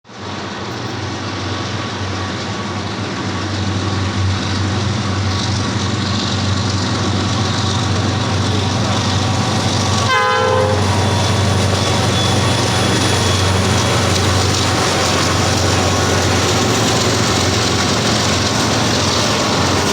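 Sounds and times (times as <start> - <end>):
diesel locomotive droning: 0.1 - 19.9
locomotive horn blast: 10.0 - 17.7.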